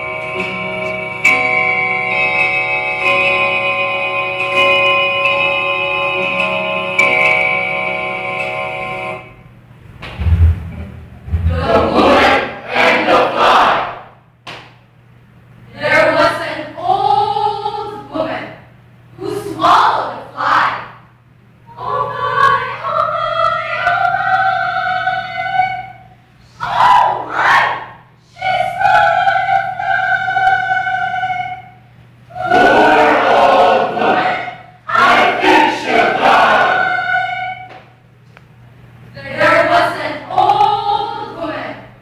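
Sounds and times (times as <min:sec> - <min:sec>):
group of voices singing in unison: 0:11.4 - 0:14.0, 0:21.8 - 0:26.0, 0:28.3 - 0:37.7.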